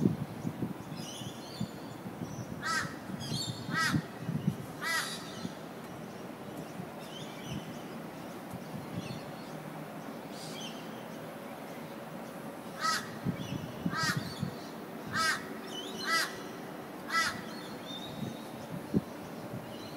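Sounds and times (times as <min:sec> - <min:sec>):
steady background hiss: 0:00.0 - 0:19.9
bird calling: 0:12.8 - 0:18.2.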